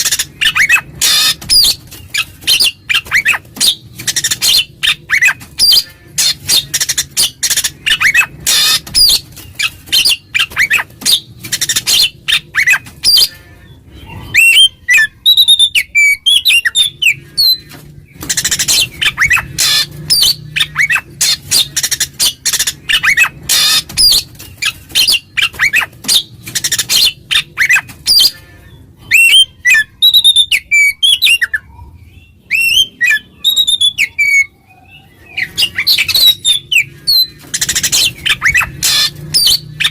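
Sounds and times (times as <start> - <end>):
songbird chattering and whistling: 14.1 - 28.3, 29.0 - 39.9.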